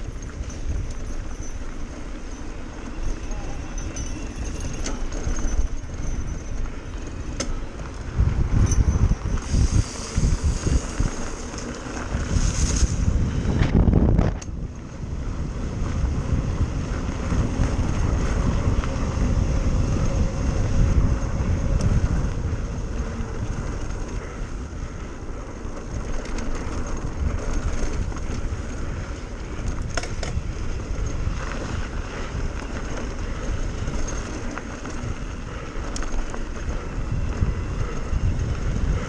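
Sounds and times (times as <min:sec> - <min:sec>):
bike clicks and rattles: 0:00.0 - 0:39.0
bike tyres rumbling on dirt: 0:00.0 - 0:39.0
wind buffeting microphone: 0:00.0 - 0:39.0.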